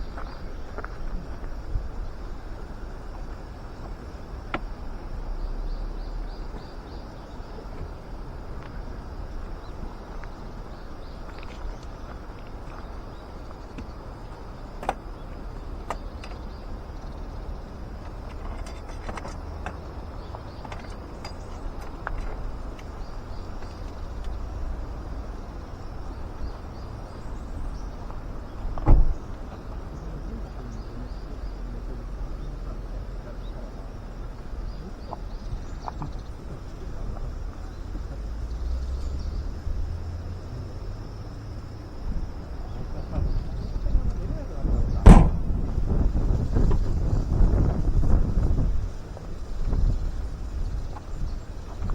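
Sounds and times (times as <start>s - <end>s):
wind rumbling on microphone: 0.0s - 51.9s
sharp knock: 45.0s - 45.6s.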